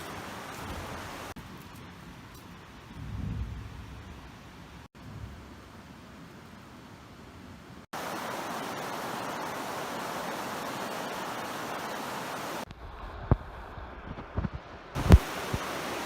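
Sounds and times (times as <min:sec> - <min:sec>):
rushing creek water: 0:00.0 - 0:01.8, 0:07.9 - 0:16.0.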